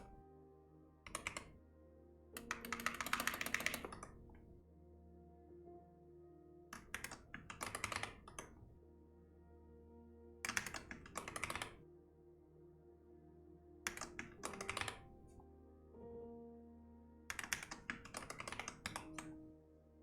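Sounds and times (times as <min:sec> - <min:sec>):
soft background music: 0:00.0 - 0:20.0
keyboard typing: 0:01.1 - 0:01.6, 0:02.4 - 0:04.4, 0:06.8 - 0:08.6, 0:10.5 - 0:11.8, 0:13.9 - 0:15.4, 0:17.3 - 0:19.4.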